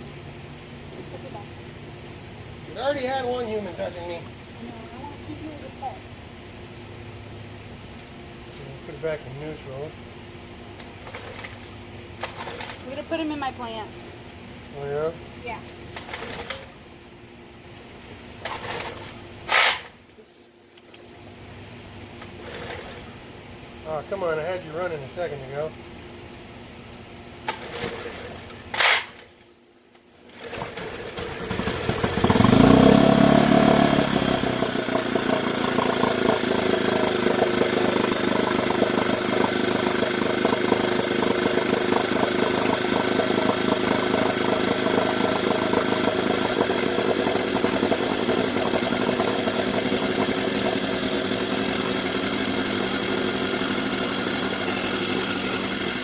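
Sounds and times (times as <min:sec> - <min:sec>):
outboard motor idling: 0:10.8 - 0:13.9, 0:18.4 - 0:19.2, 0:22.2 - 0:23.2, 0:30.2 - 0:56.0
starter cord pull: 0:12.2 - 0:12.8, 0:16.0 - 0:16.7, 0:18.4 - 0:20.0, 0:22.2 - 0:23.1, 0:27.5 - 0:29.3.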